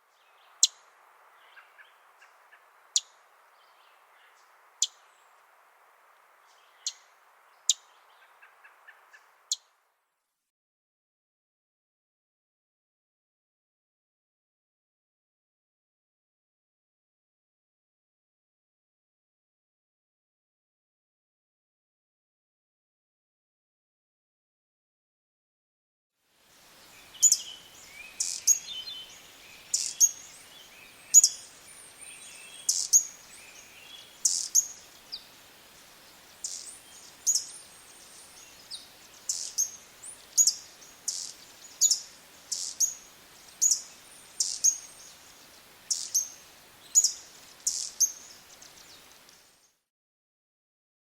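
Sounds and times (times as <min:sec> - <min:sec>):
soft low bird twittering: 0:06.4 - 0:09.7, 0:26.6 - 0:49.8
bird chirping: 0:26.8 - 0:49.8.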